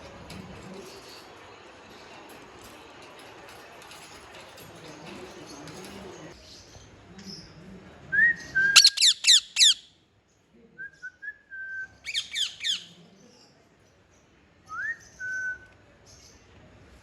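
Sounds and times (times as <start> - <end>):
parrot whistling and squawking: 8.8 - 9.8, 12.1 - 12.9.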